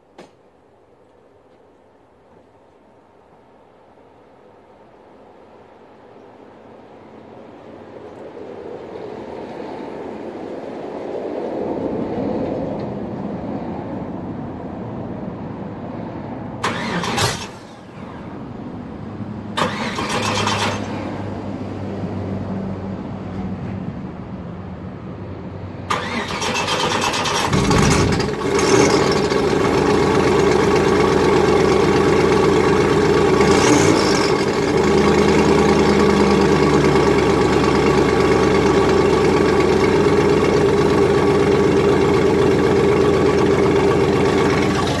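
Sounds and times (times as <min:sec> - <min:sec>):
starter motor cranking: 0:19.6 - 0:20.9, 0:25.9 - 0:30.8
car engine revving and idling: 0:25.9 - 0:45.0.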